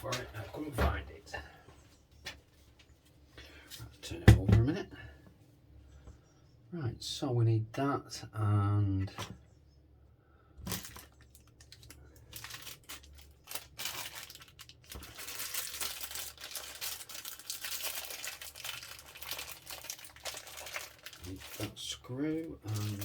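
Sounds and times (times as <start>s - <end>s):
plastic bag crinkling: 10.7s - 23.0s.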